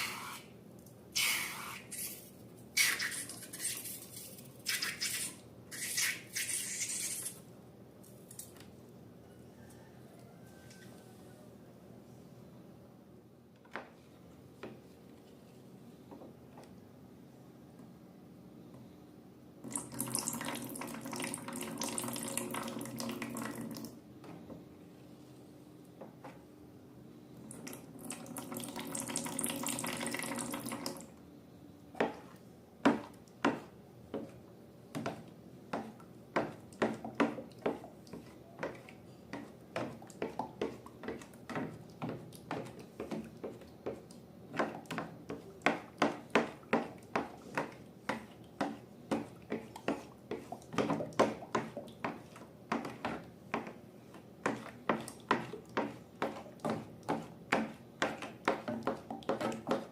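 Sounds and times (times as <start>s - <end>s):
liquid pouring: 19.7s - 23.9s.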